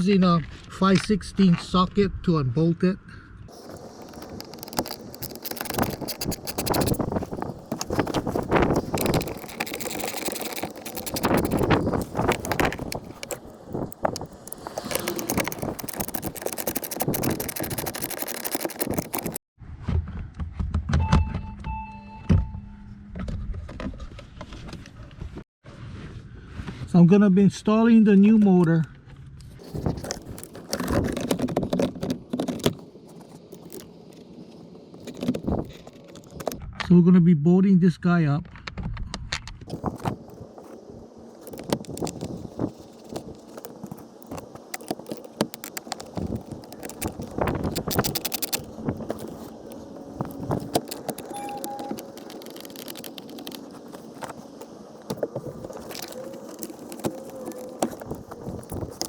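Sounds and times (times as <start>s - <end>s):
blower motor clicks and clinks: 3.5s - 19.4s, 41.4s - 59.0s.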